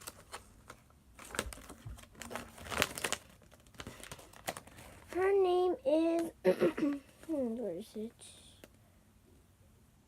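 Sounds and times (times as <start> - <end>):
packaging crinkling and rustling: 0.0 - 5.3.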